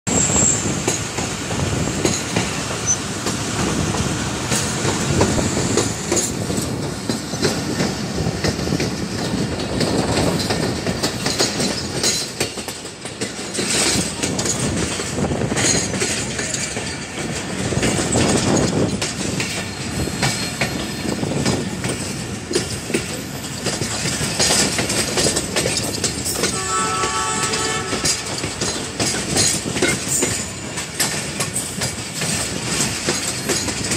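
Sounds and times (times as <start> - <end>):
train wheels rumbling on rails: 0.1 - 33.9
train horn: 26.4 - 28.7.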